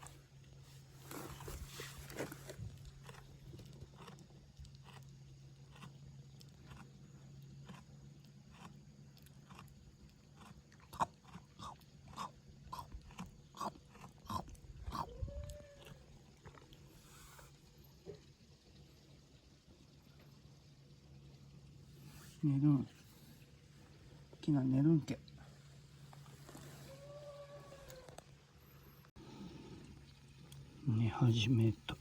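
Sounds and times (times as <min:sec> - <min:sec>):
goat chewing crunchily: 0:00.0 - 0:17.4.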